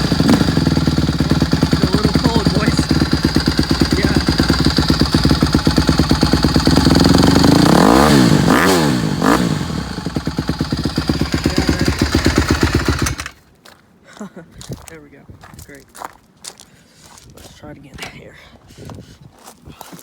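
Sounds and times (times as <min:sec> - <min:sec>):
dirt bike engine idling: 0:00.0 - 0:13.4
dirt bike engine revving: 0:00.0 - 0:13.4.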